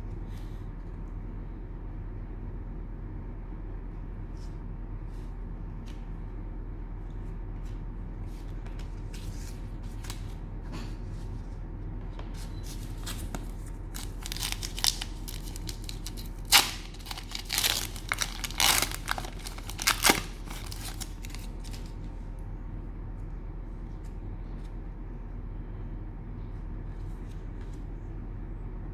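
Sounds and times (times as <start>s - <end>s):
steady low hum: 0.0s - 28.9s
cellophane wrapper tearing and crinkling: 13.9s - 21.9s.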